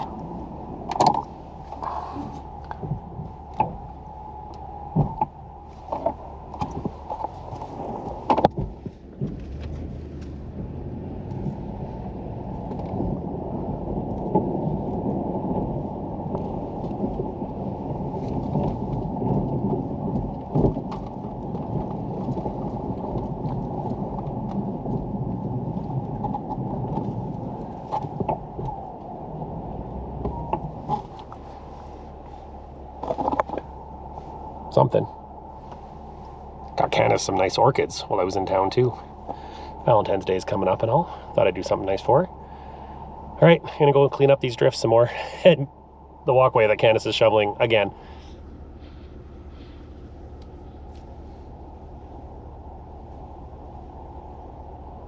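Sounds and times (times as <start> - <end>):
handling knocks and clunks: 0.0 - 11.8, 30.0 - 42.4
wind buffeting microphone: 0.0 - 55.0.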